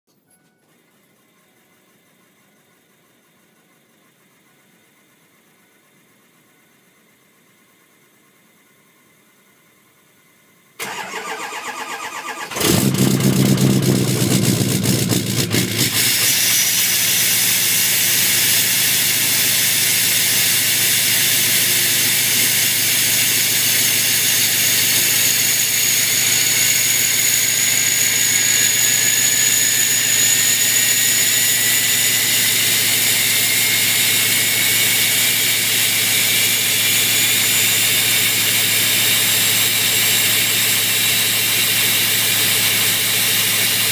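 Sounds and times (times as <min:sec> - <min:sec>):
starter motor cranking: 0:10.8 - 0:36.7
diesel engine idling: 0:10.8 - 0:43.9
high turbo whistle: 0:14.8 - 0:43.9
lower whistle rising in pitch: 0:16.2 - 0:35.6.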